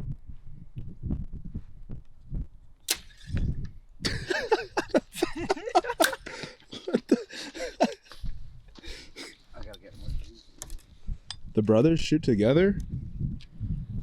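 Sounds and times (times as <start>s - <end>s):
wind buffeting microphone: 0.0s - 14.0s
bowstring snap: 2.9s - 5.4s, 6.0s - 6.5s
quick clicks: 2.9s - 7.2s.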